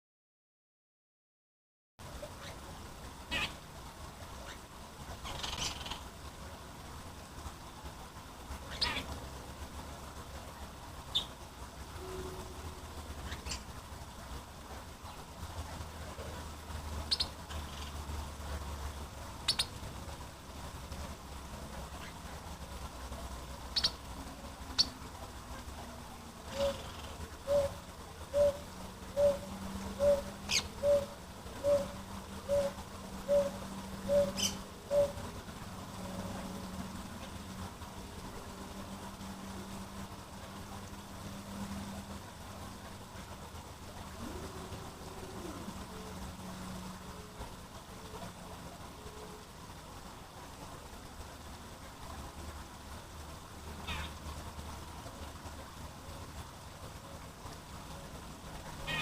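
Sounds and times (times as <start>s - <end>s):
falling water rushing: 2.0s - 59.0s
steady low hum: 2.0s - 59.0s
songbird high-pitched calls: 3.3s - 3.6s, 5.2s - 6.0s, 8.7s - 9.1s, 11.1s - 11.4s, 13.2s - 13.7s, 17.0s - 18.0s, 19.4s - 19.8s, 23.7s - 24.0s, 24.7s - 25.0s, 26.5s - 35.2s, 53.8s - 54.2s
bird hooting: 26.5s - 35.2s.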